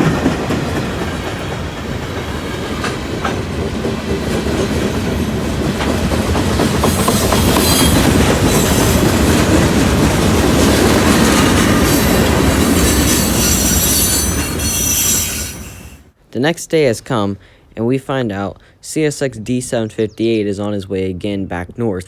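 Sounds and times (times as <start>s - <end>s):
train wheels rumbling on rails: 0.0s - 16.2s
high wheel squeals: 6.8s - 9.2s, 11.1s - 16.1s.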